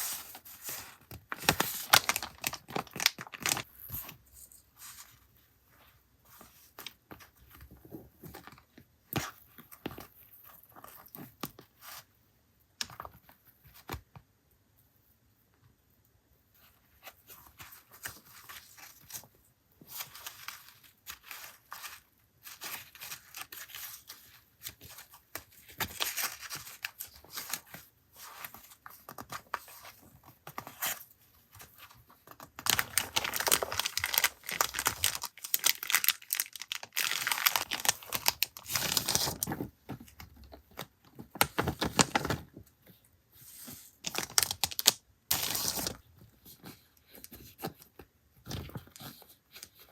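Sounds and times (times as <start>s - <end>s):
paper and packaging crinkling: 0.0s - 5.1s, 17.3s - 42.5s, 44.0s - 46.1s.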